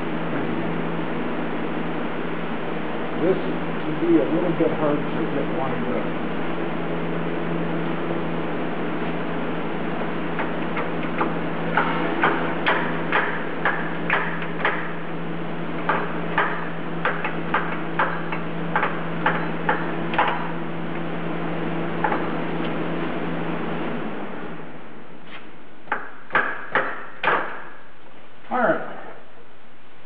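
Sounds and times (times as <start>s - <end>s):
steady hum: 0.0s - 30.0s
sharp knocks on metal: 10.4s - 15.0s, 15.8s - 20.5s, 22.0s - 22.3s, 25.9s - 27.8s.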